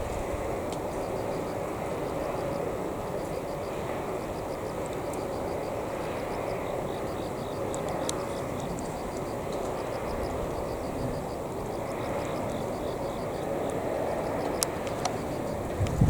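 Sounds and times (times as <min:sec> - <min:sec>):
light clicks: 0:07.7 - 0:10.0, 0:14.4 - 0:16.0.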